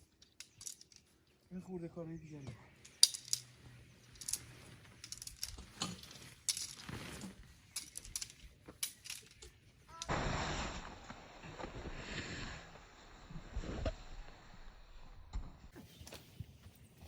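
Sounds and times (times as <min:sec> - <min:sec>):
small hard objects clinking: 0:00.0 - 0:01.2, 0:02.8 - 0:10.1.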